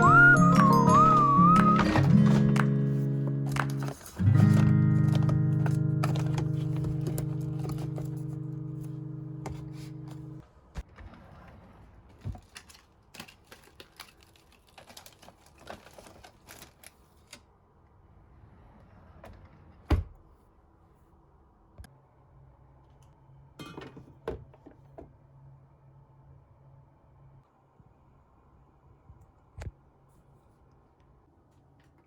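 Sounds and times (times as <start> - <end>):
household objects clicking and knocking: 1.7 - 8.3.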